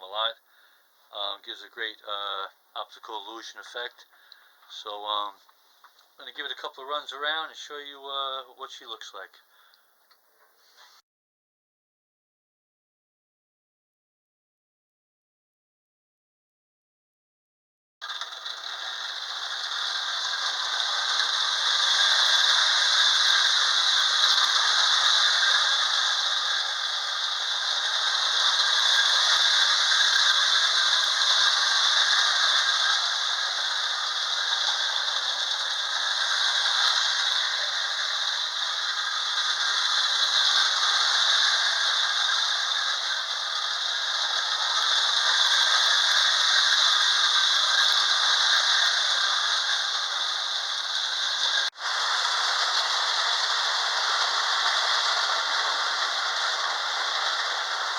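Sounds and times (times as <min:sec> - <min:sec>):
model train wheels clattering: 0:01.2 - 0:09.3, 0:18.0 - 0:57.9
whirring motors: 0:18.0 - 0:57.9.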